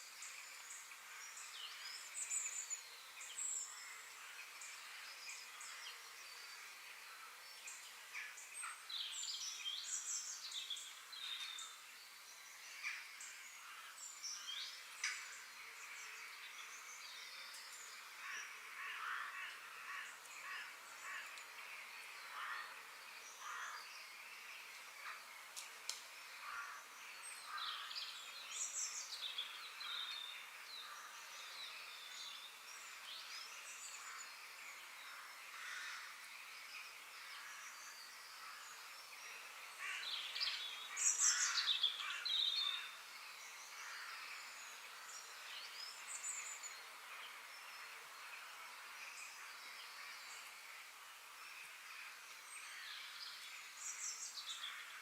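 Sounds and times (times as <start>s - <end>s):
birds chirping and singing: 26.0s - 47.8s.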